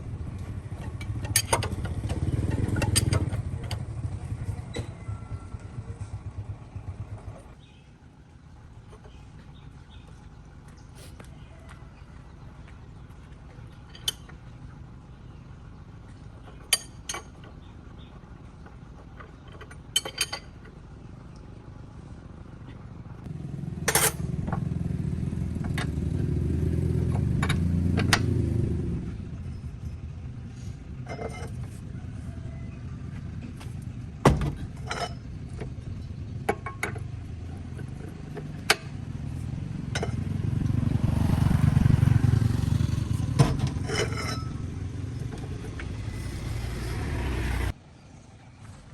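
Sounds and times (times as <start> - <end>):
engine rumbling: 0.0 - 48.9
metal clinks and knocks: 0.7 - 3.8, 43.3 - 46.6.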